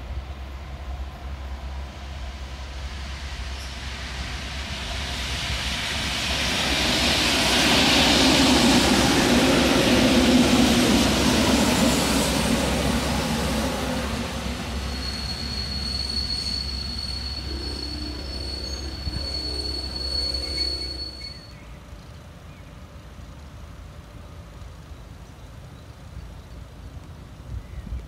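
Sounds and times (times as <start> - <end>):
train wheels rumbling: 0.0 - 27.5
high wheel squeal: 13.5 - 21.8.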